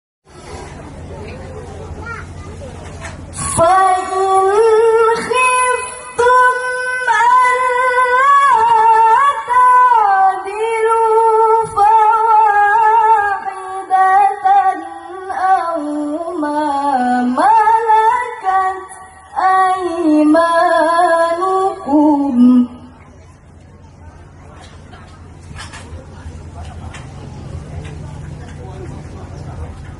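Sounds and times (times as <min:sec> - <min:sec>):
woman singing: 0:03.4 - 0:23.0.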